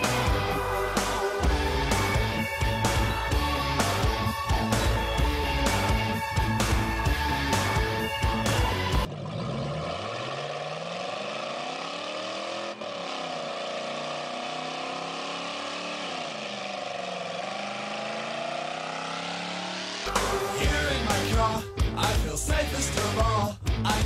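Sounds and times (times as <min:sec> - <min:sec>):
car engine revving hard: 0:05.6 - 0:21.2.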